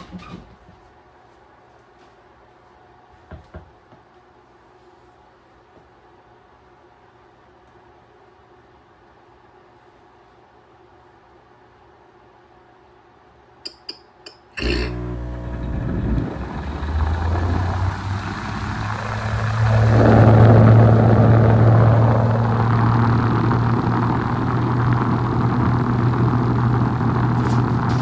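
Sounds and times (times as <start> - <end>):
heat pump compressor hum: 14.6 - 28.0.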